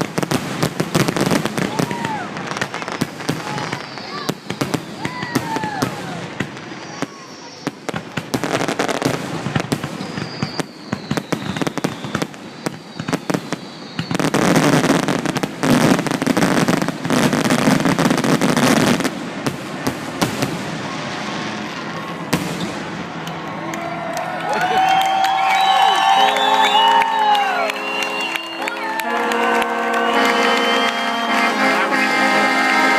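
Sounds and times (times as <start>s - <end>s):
fireworks bangs and crackles: 0.0s - 23.7s.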